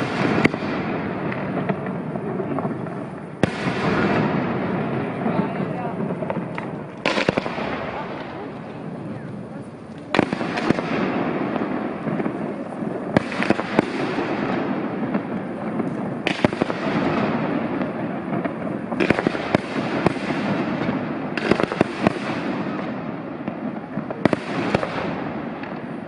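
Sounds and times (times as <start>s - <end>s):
fireworks shells bursting: 0.0s - 2.0s
fireworks crackle: 0.0s - 26.0s.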